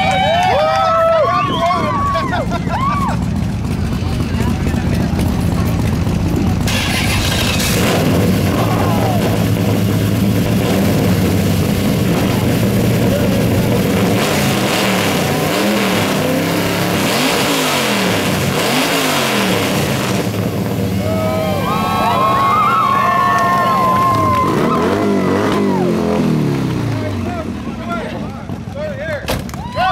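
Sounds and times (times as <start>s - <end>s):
voices: 0.0s - 6.9s
car engine revving: 2.0s - 28.6s.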